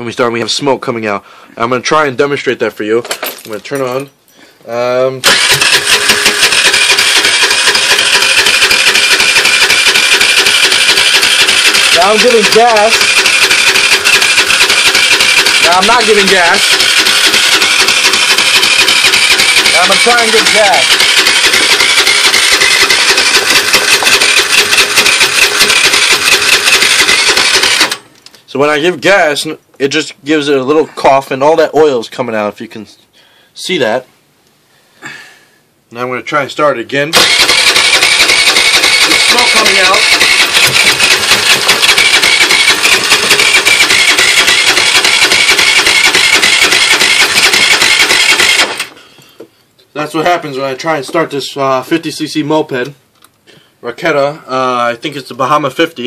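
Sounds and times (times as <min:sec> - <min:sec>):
moped engine revving: 0:05.2 - 0:28.0, 0:37.2 - 0:49.0.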